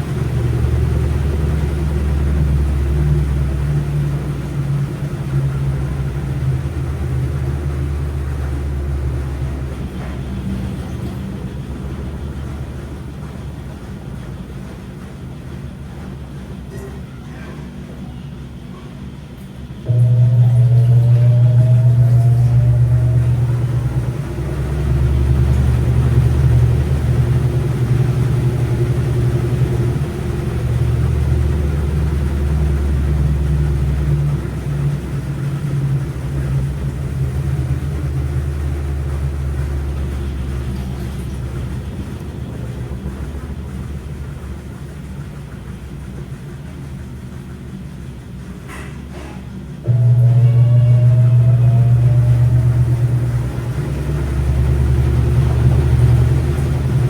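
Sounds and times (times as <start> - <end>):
washing machine low rumble: 0.0 - 57.0
faint rising whine: 19.8 - 44.7, 49.8 - 57.0.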